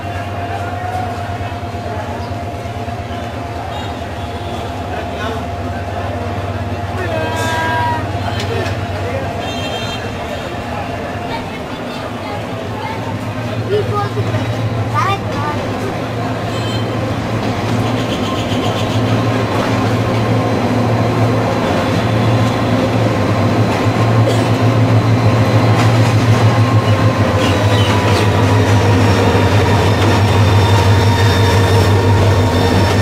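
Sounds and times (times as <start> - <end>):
diesel locomotive engine droning: 0.0 - 33.0
wheels clicking on track: 11.4 - 33.0.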